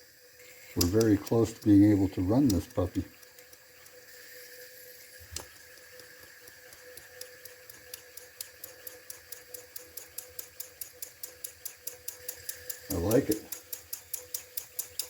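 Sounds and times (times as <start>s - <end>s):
model steam engine ticking: 0.5s - 15.0s
sharp click: 0.8s - 4.0s.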